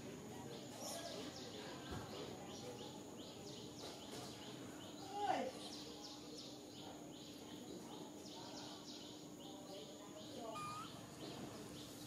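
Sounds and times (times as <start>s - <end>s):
small bird chirping: 10.2s - 12.0s
bird rising call: 10.6s - 11.0s.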